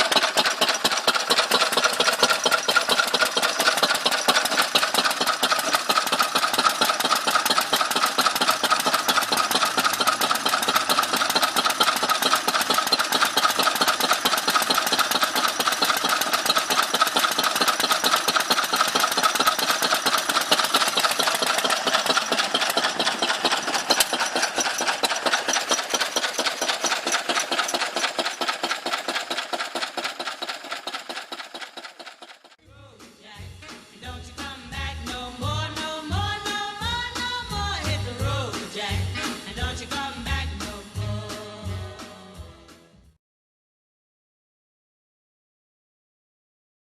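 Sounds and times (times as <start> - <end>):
stationary engine running: 0.0 - 32.6.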